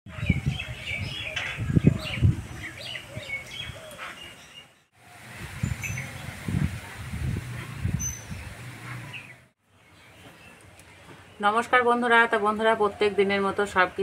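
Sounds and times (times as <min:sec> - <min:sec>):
small birds chirping: 0:00.1 - 0:06.6, 0:07.9 - 0:11.8.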